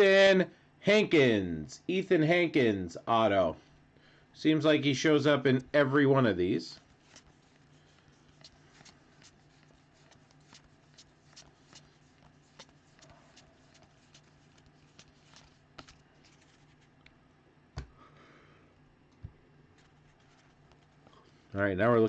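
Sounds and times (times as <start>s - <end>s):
low steady hum: 0.0s - 22.0s
cards being flipped by hand: 6.8s - 17.2s, 19.2s - 21.5s.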